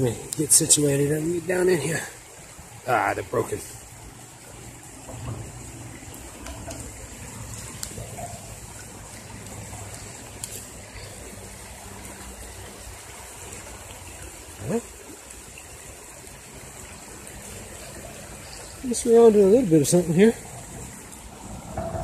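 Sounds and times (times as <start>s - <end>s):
creek water trickling: 0.0s - 22.0s
faint sharp clicks: 9.4s - 10.7s.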